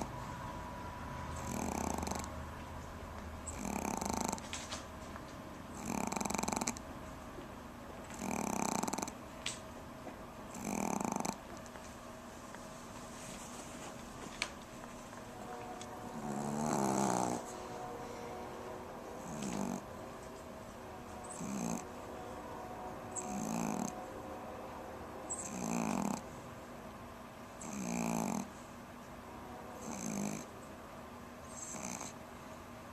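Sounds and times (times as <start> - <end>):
dog snoring: 1.3 - 2.4, 3.4 - 4.5, 5.7 - 6.8, 8.1 - 9.2, 10.5 - 11.5, 16.1 - 17.5, 19.2 - 19.9, 21.2 - 21.9, 23.2 - 24.0, 25.3 - 26.3, 27.6 - 28.6, 29.8 - 30.5, 31.5 - 32.2.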